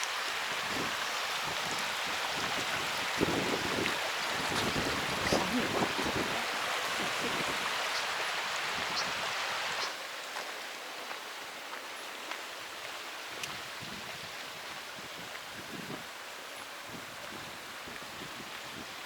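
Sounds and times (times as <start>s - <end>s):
wind blowing: 0.4s - 9.9s
wind rumble on microphone: 0.5s - 9.4s, 13.4s - 16.1s, 16.8s - 19.0s.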